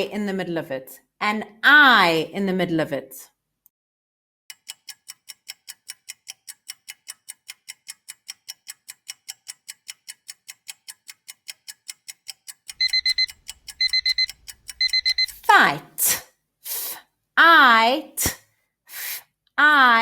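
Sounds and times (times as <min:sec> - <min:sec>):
clock ticking: 0:04.5 - 0:15.5
alarm clock beeping: 0:12.7 - 0:15.5.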